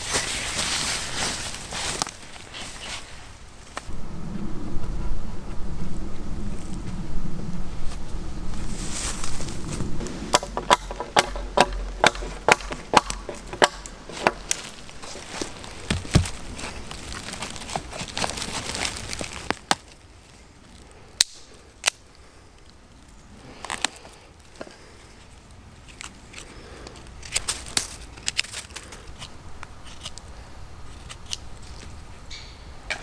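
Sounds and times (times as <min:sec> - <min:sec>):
tool knocking on wood: 0:10.0 - 0:15.3, 0:15.9 - 0:16.4.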